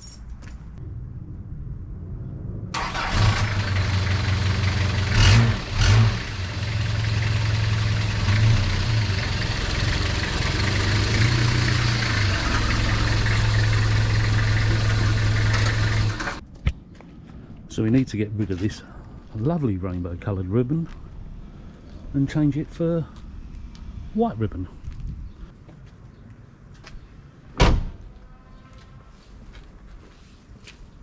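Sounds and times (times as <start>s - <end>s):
taxi engine starting and idling: 2.8s - 16.4s.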